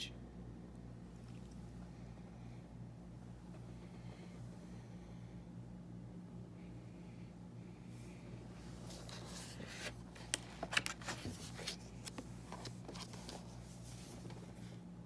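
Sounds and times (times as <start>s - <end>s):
faint steady hum: 0.0s - 15.0s
paper rustling: 8.6s - 14.7s
book pages clicking: 8.9s - 13.6s.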